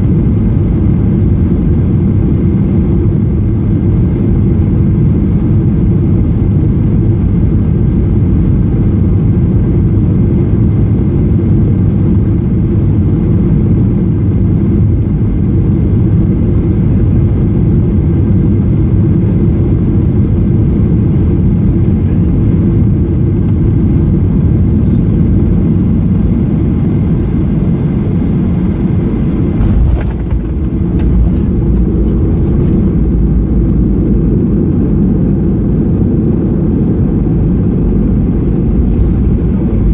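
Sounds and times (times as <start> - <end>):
airplane cabin engine roar: 0.0 - 39.9
deep low rumble: 15.0 - 39.9.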